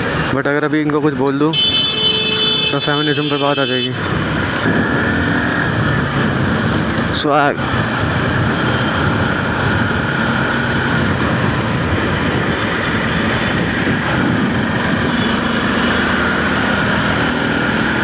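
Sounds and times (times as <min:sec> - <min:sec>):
road noise: 0:00.0 - 0:18.0
wind rushing: 0:04.1 - 0:07.0, 0:07.6 - 0:15.4.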